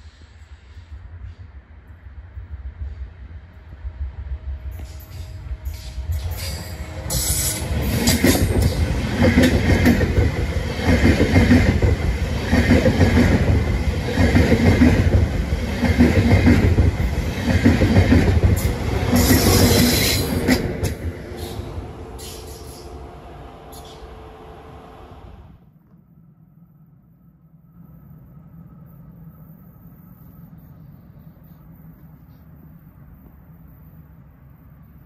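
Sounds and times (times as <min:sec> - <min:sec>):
train wheels clattering over track: 0:04.7 - 0:22.9.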